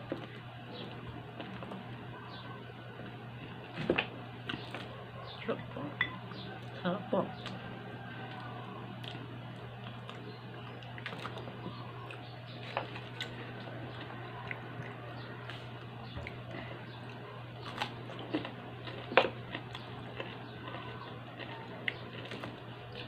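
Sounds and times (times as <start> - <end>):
steady low hum: 0.0 - 23.0
person chewing and biting food: 8.2 - 23.0.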